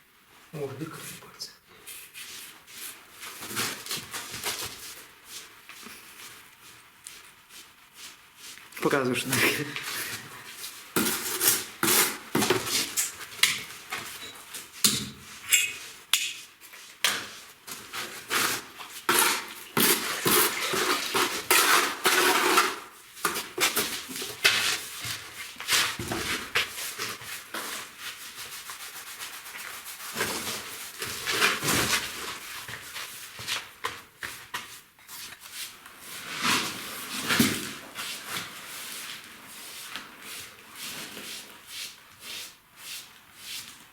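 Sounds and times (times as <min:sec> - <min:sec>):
metal tools scraping brick: 0:18.4 - 0:22.9.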